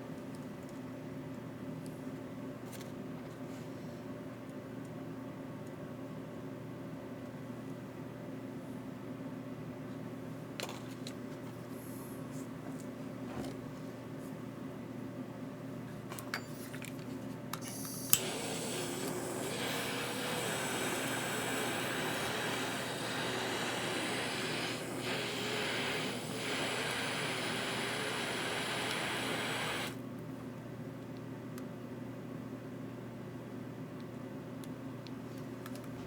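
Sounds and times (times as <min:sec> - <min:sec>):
electric blower motor running: 0:18.1 - 0:30.0.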